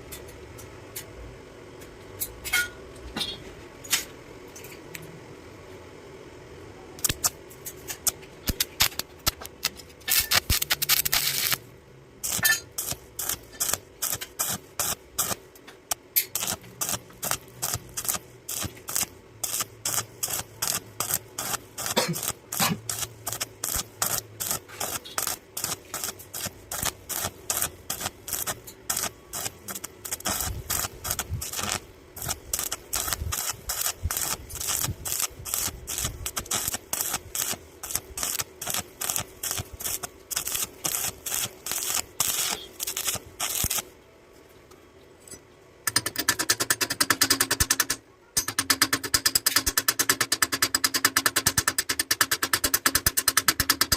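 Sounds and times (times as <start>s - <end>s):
hand tool scraping metal: 12.2s - 15.4s, 16.2s - 43.8s.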